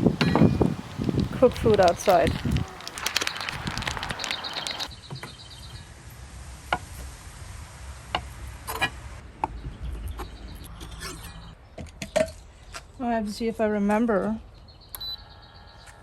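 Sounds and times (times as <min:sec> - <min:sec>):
fast high chirps: 0:00.6 - 0:05.0.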